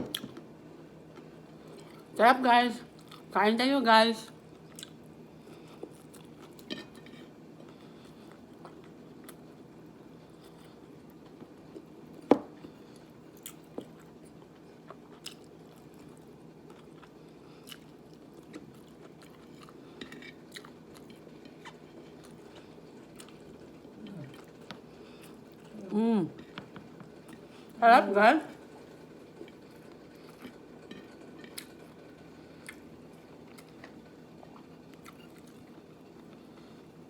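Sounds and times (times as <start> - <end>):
chewing and biting food: 12.9 - 25.8, 32.6 - 35.7.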